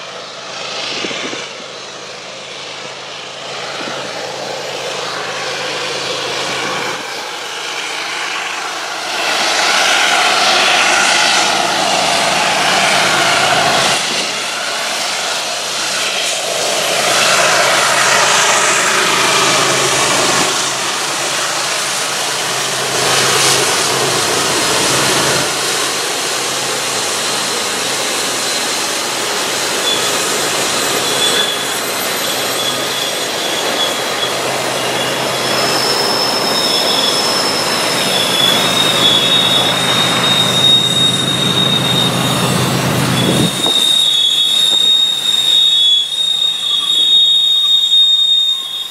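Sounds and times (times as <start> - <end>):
freight train passing: 0.0 - 48.9
wind on microphone: 0.7 - 1.8, 3.5 - 5.1, 10.5 - 14.7, 37.6 - 45.2
high wheel squeal: 2.5 - 48.9.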